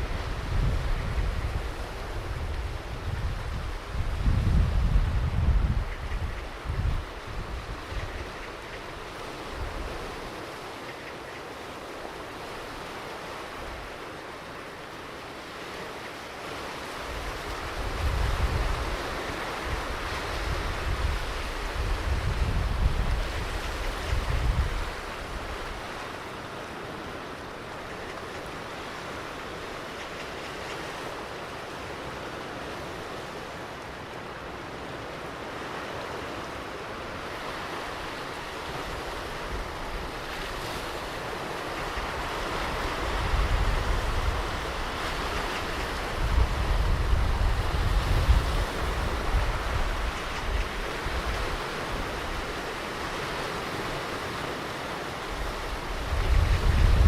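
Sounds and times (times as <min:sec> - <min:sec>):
wind buffeting microphone: 0:00.0 - 0:10.6, 0:16.9 - 0:27.1, 0:37.2 - 0:54.6, 0:55.2 - 0:57.0
ocean surf breaking: 0:00.0 - 0:57.0.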